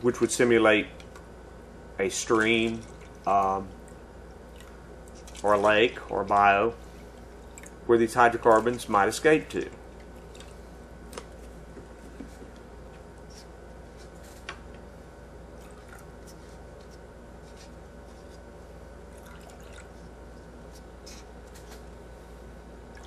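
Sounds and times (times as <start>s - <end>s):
steady low hum: 0.0s - 23.0s
water dripping into cups: 2.6s - 5.5s, 7.4s - 7.8s, 9.6s - 10.6s, 15.6s - 16.1s, 19.1s - 20.0s.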